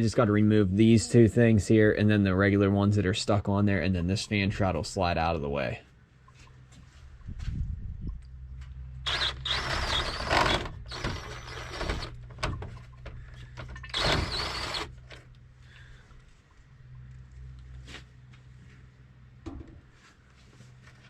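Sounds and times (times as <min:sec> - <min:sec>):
pneumatic air ratchet whining: 0:09.0 - 0:12.6, 0:13.7 - 0:15.3.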